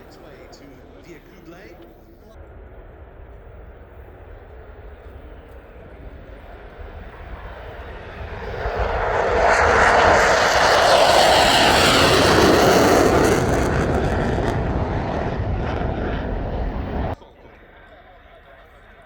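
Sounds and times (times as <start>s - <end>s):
fighter jet flying past: 2.4s - 17.2s.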